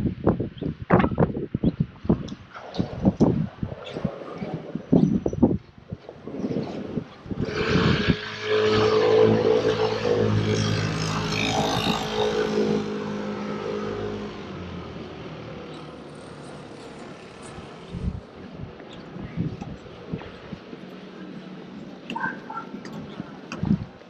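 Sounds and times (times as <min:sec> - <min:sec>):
vehicle engine passing by: 0:07.4 - 0:18.4.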